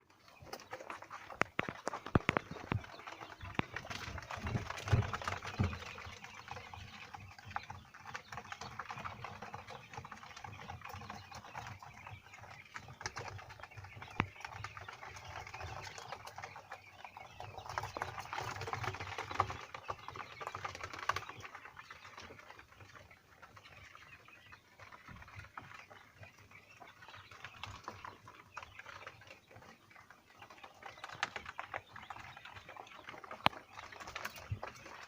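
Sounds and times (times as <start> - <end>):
chicks scratching and ticking: 0.0 - 35.0.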